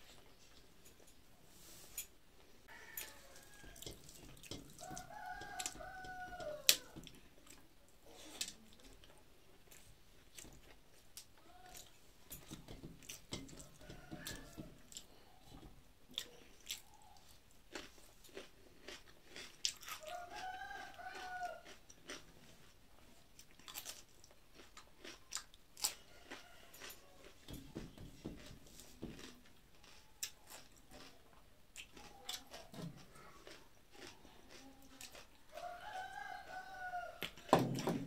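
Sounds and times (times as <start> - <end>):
chicken clucking: 4.8 - 7.0, 20.0 - 21.7
chewing with wet smacks: 16.1 - 22.4, 23.3 - 27.6, 28.3 - 35.7.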